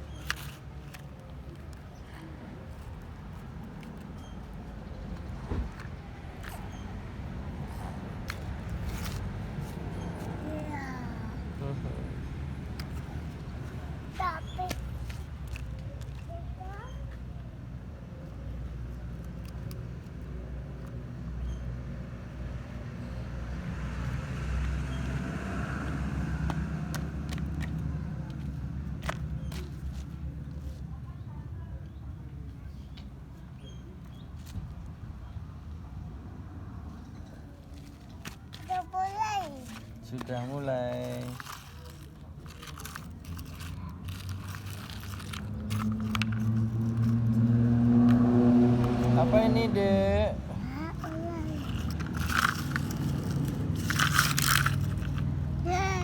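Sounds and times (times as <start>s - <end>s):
engine low rumble: 0.0s - 56.0s
sand crunching and scraping: 37.8s - 50.0s.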